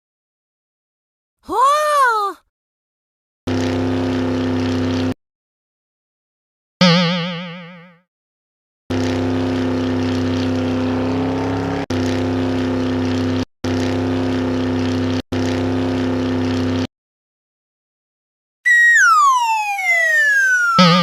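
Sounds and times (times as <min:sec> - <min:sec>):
steady motor engine: 0:03.5 - 0:05.2, 0:08.9 - 0:16.9.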